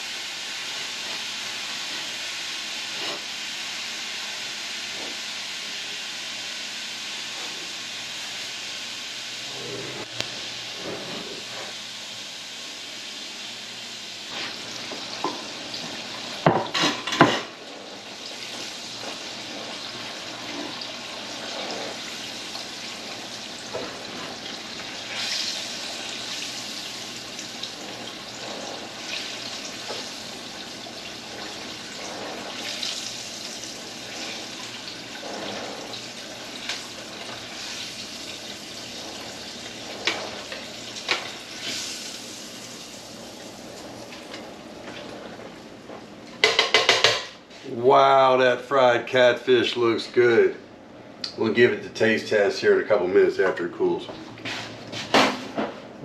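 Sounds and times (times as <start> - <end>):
fish deep-frying sizzle: 0.0 - 9.5, 11.4 - 44.8.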